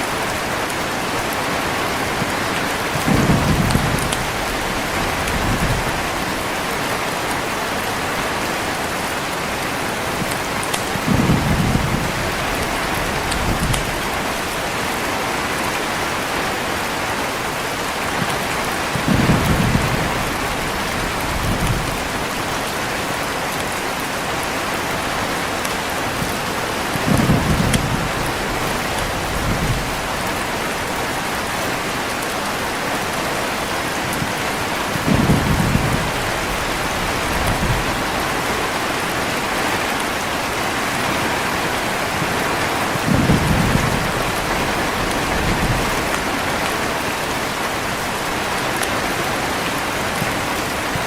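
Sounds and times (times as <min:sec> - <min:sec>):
heavy rain falling: 0:00.0 - 0:51.0
low thunder rumbles: 0:02.1 - 0:07.9, 0:10.1 - 0:15.0, 0:18.2 - 0:22.7, 0:26.2 - 0:30.6, 0:34.1 - 0:40.0, 0:41.3 - 0:47.3.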